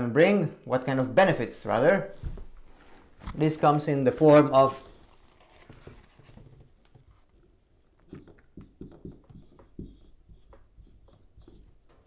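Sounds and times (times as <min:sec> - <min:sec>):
pen writing taps and scratches: 0:08.0 - 0:12.0.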